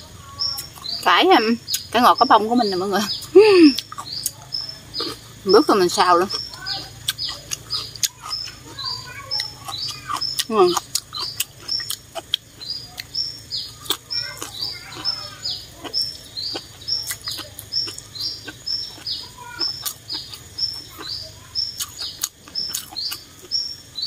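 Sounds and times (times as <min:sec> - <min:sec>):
bird chirping: 0:00.0 - 0:24.0
person chewing noodles: 0:03.7 - 0:05.4, 0:06.3 - 0:08.8, 0:09.4 - 0:23.9.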